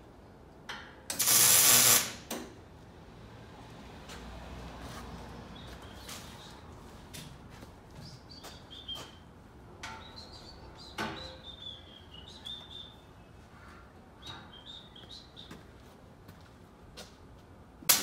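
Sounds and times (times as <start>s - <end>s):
birds chirping: 8.0s - 13.5s, 14.2s - 15.6s.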